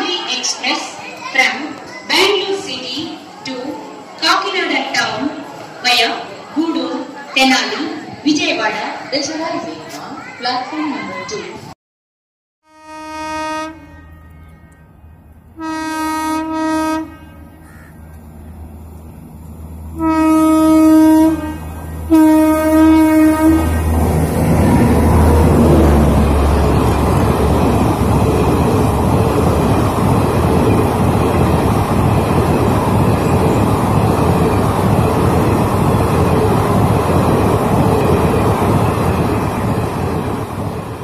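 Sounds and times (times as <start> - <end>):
train coaches rumbling past: 0.0 - 11.7, 12.8 - 41.0
diesel train horn blasts: 12.6 - 18.1, 19.8 - 24.0.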